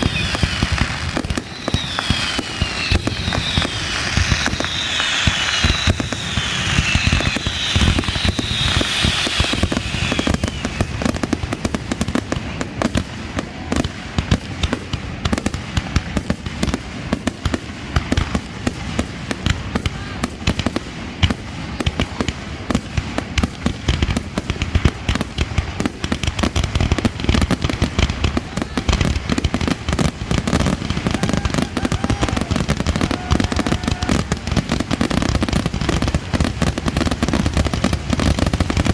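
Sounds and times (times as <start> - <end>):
falling firework whistles: 0.0 - 11.4, 30.4 - 36.1
fireworks bangs and crackling: 0.0 - 38.9.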